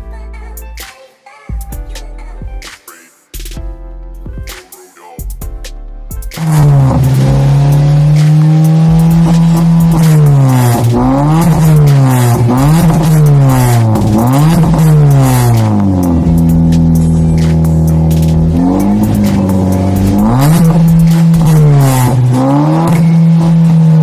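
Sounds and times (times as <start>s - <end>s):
car engine revving: 6.3s - 24.0s.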